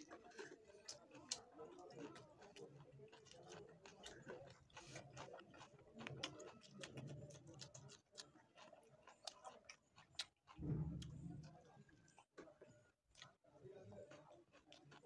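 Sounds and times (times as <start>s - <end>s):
person chewing with lip-smacks: 0.0s - 15.0s.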